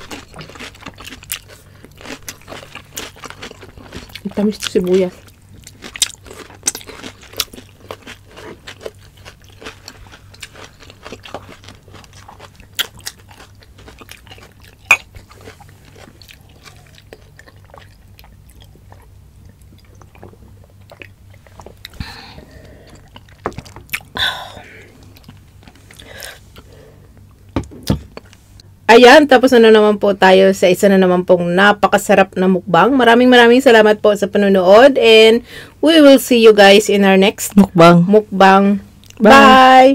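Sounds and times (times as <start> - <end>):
crunchy chewing and biting: 0.0 - 24.2.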